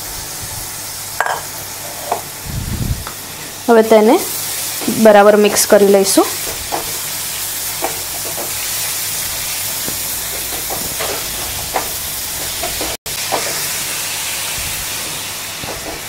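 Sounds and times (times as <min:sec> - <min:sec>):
carrots sizzling in a pan: 0:00.0 - 0:16.0
spatula scraping and tapping pan: 0:07.8 - 0:08.6, 0:09.8 - 0:13.6.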